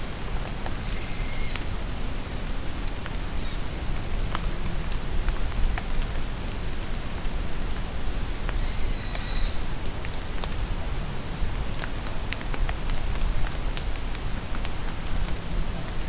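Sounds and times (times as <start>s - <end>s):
raindrops pattering: 0.0s - 16.0s
steady rain falling: 0.0s - 16.0s.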